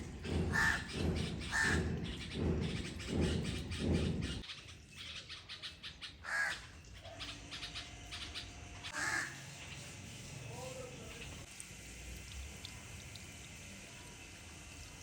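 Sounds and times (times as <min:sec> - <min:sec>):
crows cawing: 0:00.3 - 0:02.1, 0:06.2 - 0:06.7, 0:08.9 - 0:09.5.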